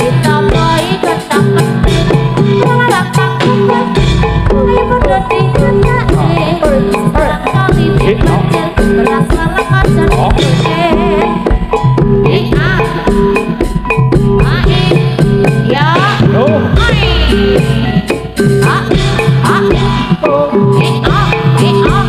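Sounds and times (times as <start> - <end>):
person singing: 0.0 - 22.0
gamelan ensemble playing: 3.5 - 21.7.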